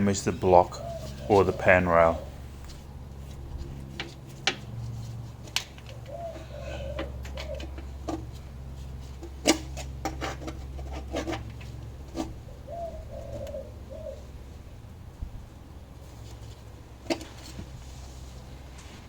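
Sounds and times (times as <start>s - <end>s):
pigeon cooing: 0.2s - 2.7s, 5.8s - 8.3s, 12.2s - 14.6s.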